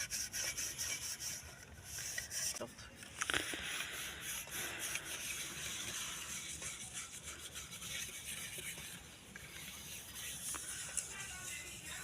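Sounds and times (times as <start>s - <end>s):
dishes being scrubbed: 3.5s - 12.0s.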